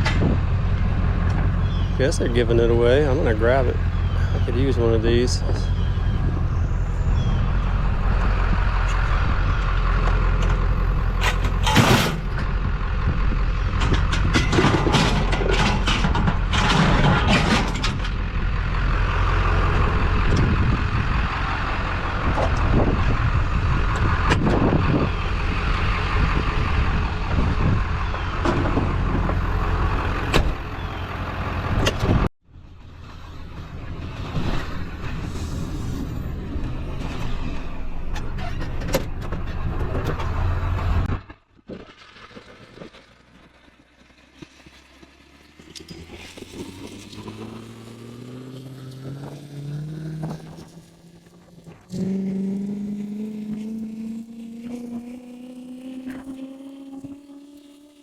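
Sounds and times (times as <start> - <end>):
vehicle engine running: 0.0 - 58.0
metal clanking and rattling: 9.9 - 12.7, 13.6 - 18.4, 36.6 - 41.2.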